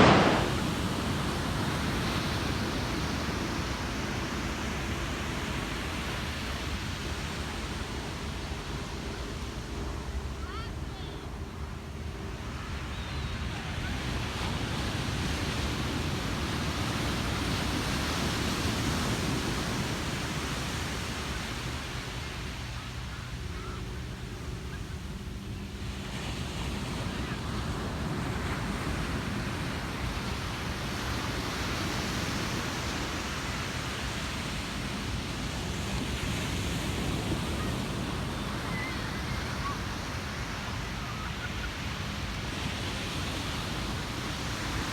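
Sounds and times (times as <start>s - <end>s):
ocean waves breaking: 0.0s - 7.2s.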